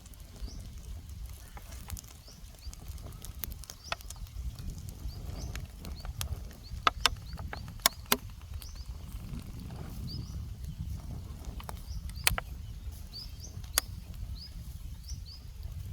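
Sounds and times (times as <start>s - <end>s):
sharp clicks and knocks: 5.5s - 8.8s, 11.4s - 12.5s.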